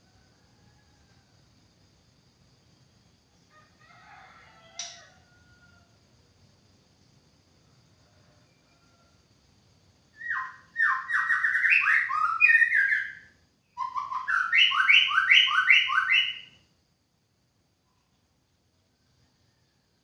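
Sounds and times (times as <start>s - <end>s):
songbird singing: 10.1s - 16.7s.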